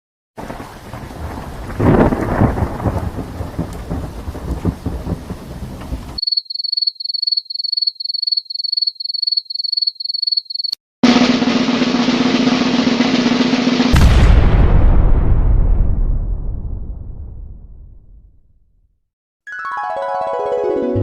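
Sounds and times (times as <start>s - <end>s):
rain-like hiss: 0.4s - 6.2s
thunderclap: 0.4s - 6.2s, 11.0s - 18.4s.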